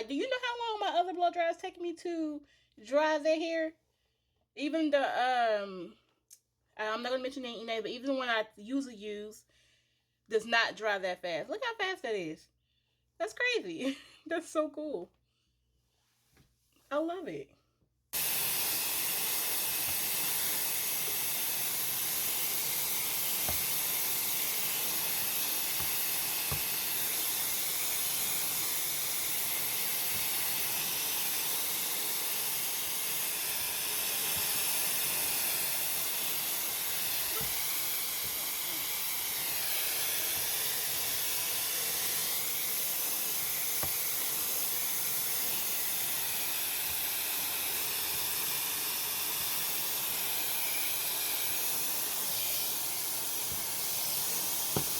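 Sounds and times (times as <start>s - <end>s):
hair dryer running: 18.2s - 54.9s.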